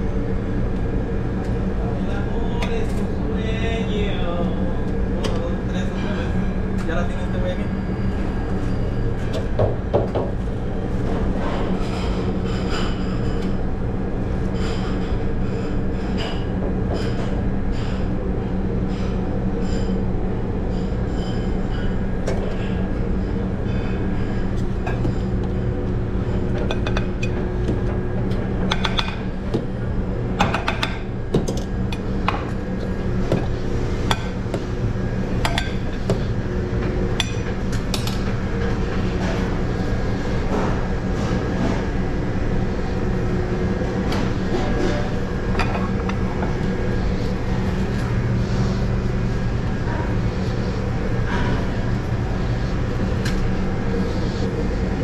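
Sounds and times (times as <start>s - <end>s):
loud machinery hum: 0.0s - 55.0s.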